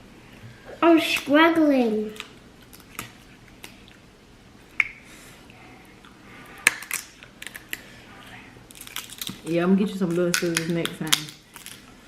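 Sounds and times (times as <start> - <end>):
crab shells cracking: 6.6 - 7.9, 8.7 - 11.9.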